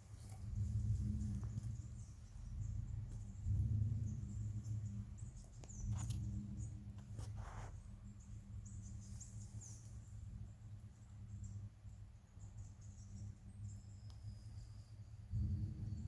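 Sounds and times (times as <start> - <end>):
low steady rumble: 0.0 - 16.0
high chirps of birds or insects: 8.0 - 16.0.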